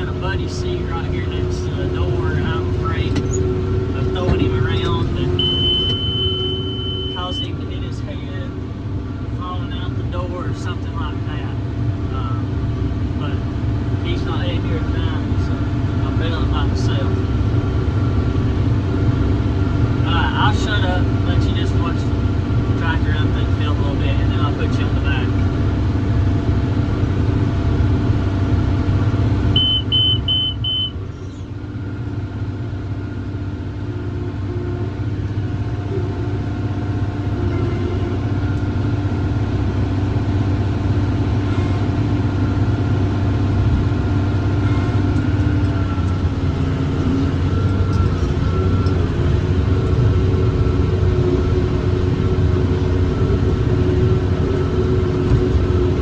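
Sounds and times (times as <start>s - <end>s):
tractor diesel engine running: 0.0s - 56.0s
quick electronic beeps: 5.4s - 7.6s, 29.6s - 31.0s.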